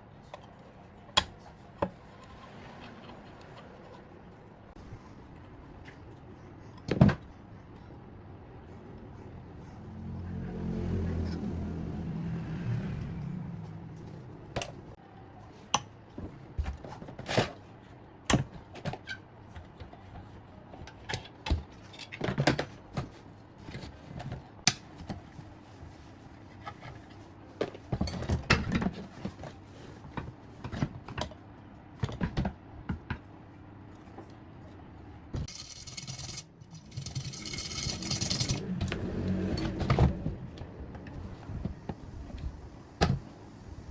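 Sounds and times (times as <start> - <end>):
metal tools clinking and scraping: 35.5 - 38.6.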